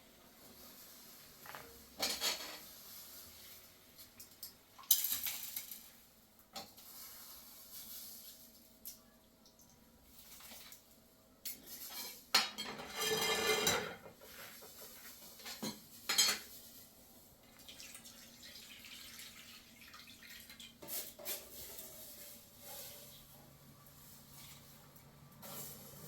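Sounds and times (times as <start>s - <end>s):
pots pans and cutlery clattering: 1.4s - 2.8s, 4.2s - 5.9s, 11.4s - 16.7s, 20.5s - 23.3s.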